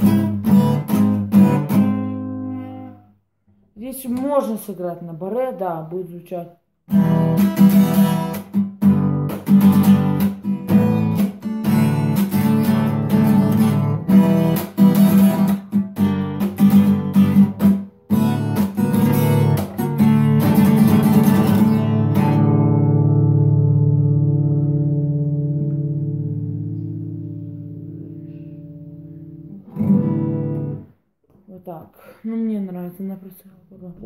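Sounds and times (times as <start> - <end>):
acoustic guitar strumming: 0.0 - 3.2, 6.9 - 31.0.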